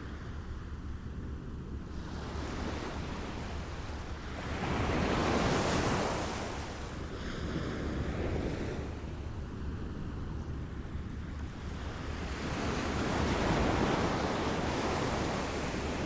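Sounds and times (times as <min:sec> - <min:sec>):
small waves lapping on shore: 0:01.9 - 0:09.3.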